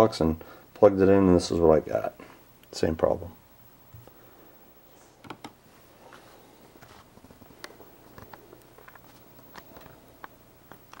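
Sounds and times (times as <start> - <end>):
low steady hum: 0.0 - 11.0
faint clicks and taps: 5.2 - 6.2, 6.8 - 11.0.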